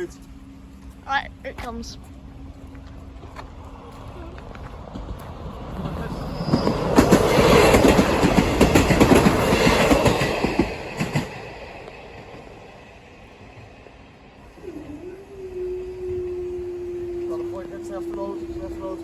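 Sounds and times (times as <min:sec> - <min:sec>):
train wheels clattering over rails: 0:02.2 - 0:14.0.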